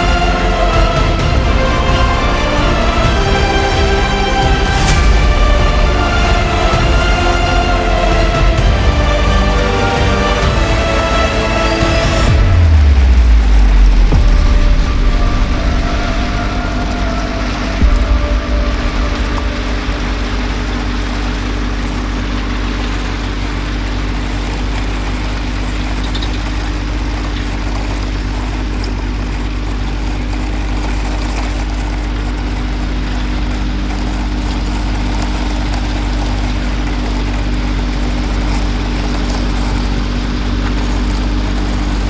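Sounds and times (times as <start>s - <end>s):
engine idling: 0.0s - 42.0s.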